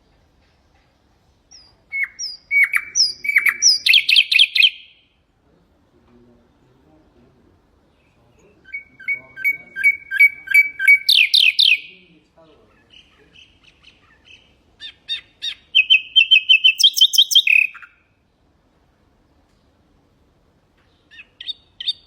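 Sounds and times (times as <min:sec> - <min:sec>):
nightingale singing: 0:00.8 - 0:05.3, 0:07.8 - 0:18.5, 0:20.8 - 0:22.0.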